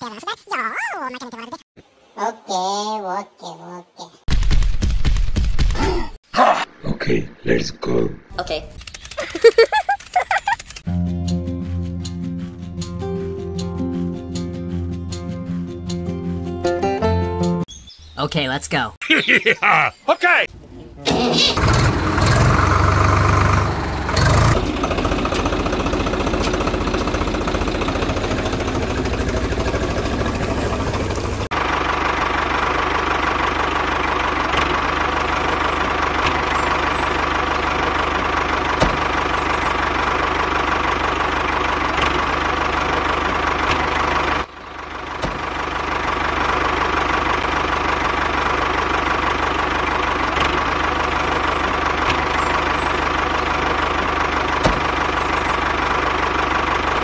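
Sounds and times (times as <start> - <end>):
tractor engine running: 8.7 - 16.6, 21.0 - 57.0.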